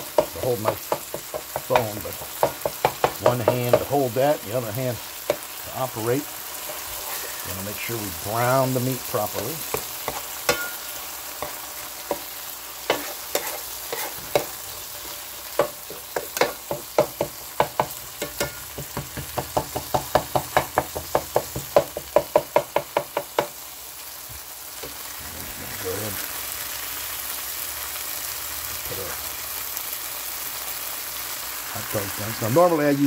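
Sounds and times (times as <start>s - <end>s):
spatula tapping and scraping pan: 0.0s - 4.0s, 5.2s - 5.6s, 9.2s - 23.6s
meat sizzling in skillet: 0.0s - 33.0s.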